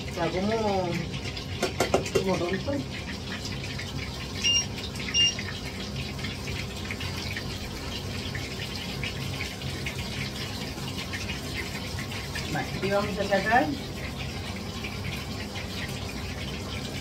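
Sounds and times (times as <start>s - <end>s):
meat sizzling in a frying pan: 0.0s - 17.0s
short electronic beeps: 4.4s - 5.4s.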